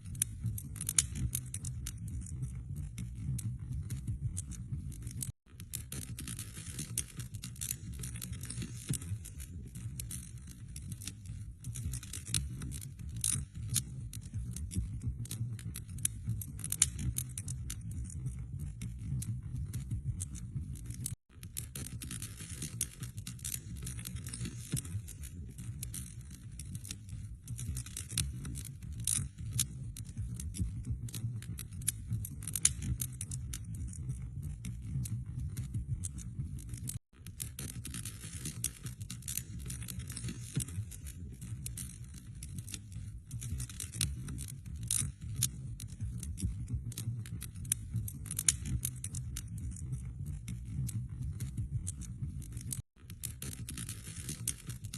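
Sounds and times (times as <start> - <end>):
wood fire crackling: 0.0 - 54.9.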